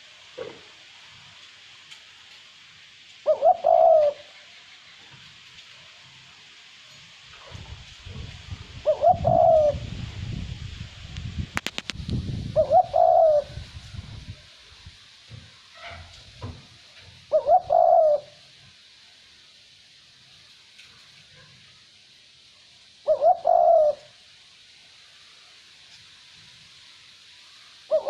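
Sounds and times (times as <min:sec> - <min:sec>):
dove cooing: 0:03.2 - 0:04.4, 0:08.8 - 0:10.0, 0:12.5 - 0:13.7, 0:17.2 - 0:18.5, 0:23.0 - 0:24.2
light wind rumble: 0:07.1 - 0:18.5
rattle of clicks: 0:11.5 - 0:12.2.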